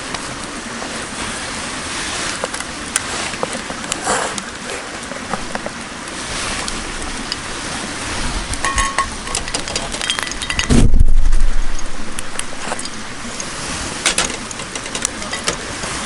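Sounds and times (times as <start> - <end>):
metal cookware clinking: 8.6 - 10.7
loud low rumble: 10.6 - 13.4.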